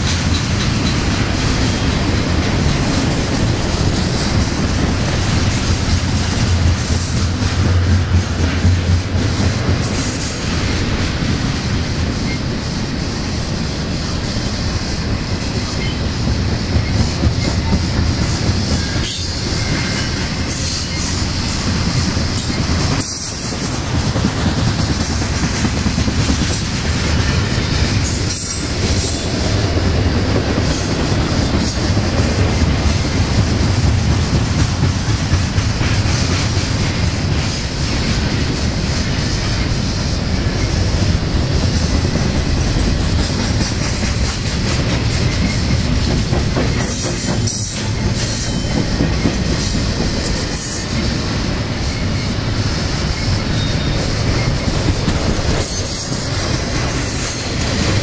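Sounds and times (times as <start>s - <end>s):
train wheels rumbling and clattering: 0.0s - 58.0s
high-pitched wheel squeals: 51.9s - 54.8s.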